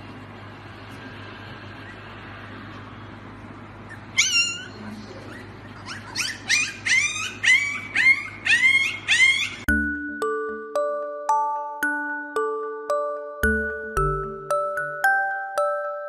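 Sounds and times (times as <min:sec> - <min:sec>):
puppy crying in high-pitched yips: 0:03.9 - 0:09.7.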